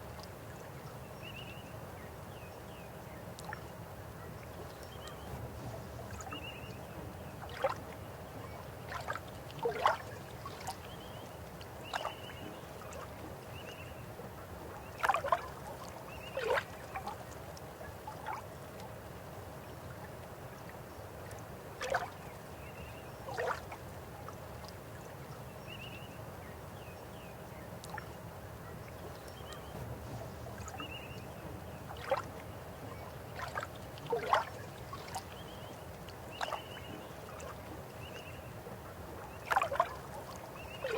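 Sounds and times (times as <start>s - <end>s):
river water flowing: 3.4s - 22.7s, 27.4s - 40.9s
water gurgles and splashes: 5.2s - 11.2s, 14.9s - 17.4s, 21.8s - 22.2s, 23.3s - 23.8s, 29.5s - 40.9s.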